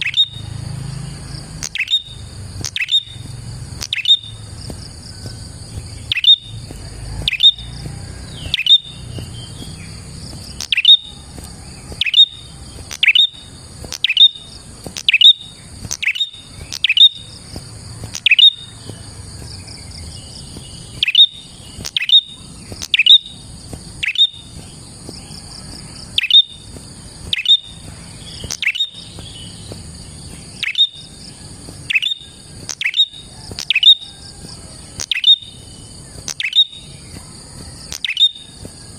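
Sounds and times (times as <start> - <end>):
bird calling sharp notes: 0.0 - 0.6, 1.5 - 18.9, 20.8 - 24.6, 26.1 - 29.6, 30.4 - 31.1, 31.8 - 34.1, 34.9 - 35.6, 36.2 - 37.0, 37.8 - 38.6
insects buzzing: 0.0 - 38.9.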